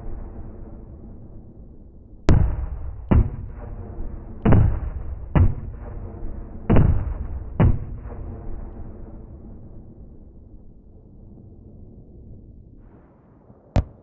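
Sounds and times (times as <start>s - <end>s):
cannon booms with rumbling tail: 0.0s - 10.5s.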